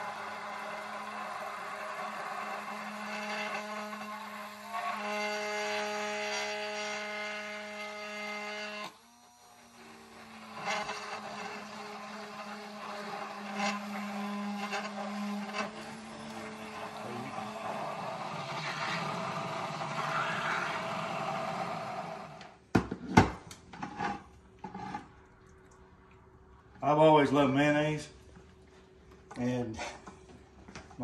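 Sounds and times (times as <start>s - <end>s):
immersion blender motor whine: 0.0s - 22.6s.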